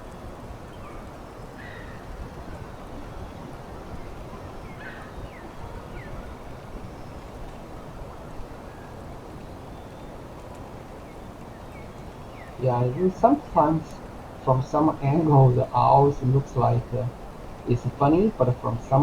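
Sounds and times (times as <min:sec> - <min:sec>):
low outdoor rumble: 0:12.5 - 0:19.0.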